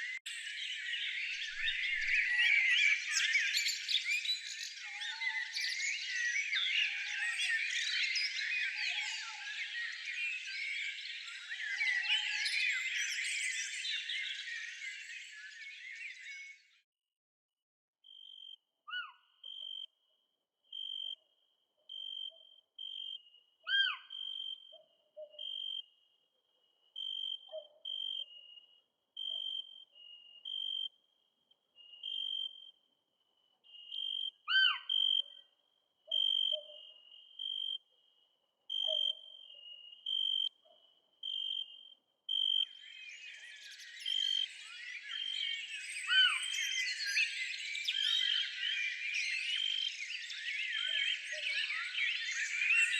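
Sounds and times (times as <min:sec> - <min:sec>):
chorus of bird calls: 0:00.0 - 0:16.7, 0:22.3 - 0:26.0, 0:33.7 - 0:35.5, 0:36.1 - 0:37.8, 0:42.6 - 0:52.9.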